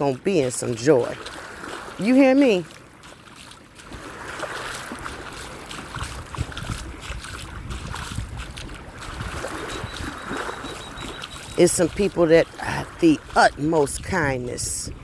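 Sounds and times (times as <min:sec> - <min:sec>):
beach surf: 0:00.0 - 0:15.0
wind buffeting microphone: 0:03.7 - 0:15.0.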